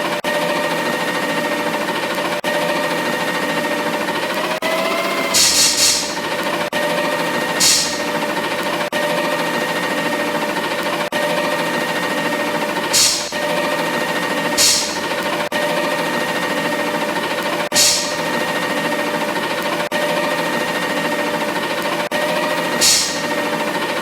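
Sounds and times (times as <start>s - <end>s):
garbage truck machinery whining: 0.0s - 24.0s
air hisses: 5.3s - 6.3s, 7.6s - 8.2s, 12.9s - 13.5s, 14.6s - 15.2s, 17.8s - 18.4s, 22.8s - 23.4s.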